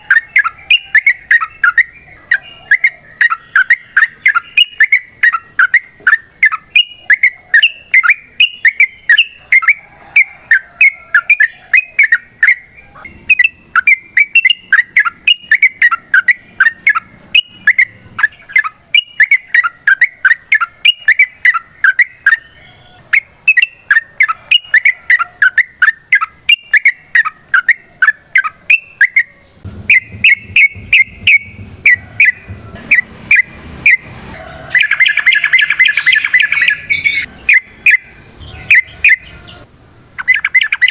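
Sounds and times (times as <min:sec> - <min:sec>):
bird chirping rapidly: 0:00.0 - 0:40.9
low background rumble: 0:29.4 - 0:40.2.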